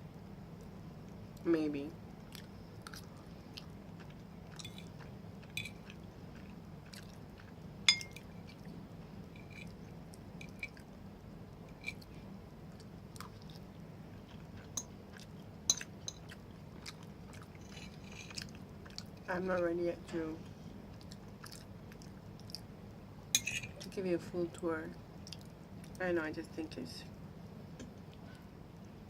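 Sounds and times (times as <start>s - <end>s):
person chewing food: 2.3s - 8.7s, 12.7s - 19.2s, 20.9s - 22.7s
utensil clinking against dish: 7.9s - 8.2s, 23.4s - 23.7s.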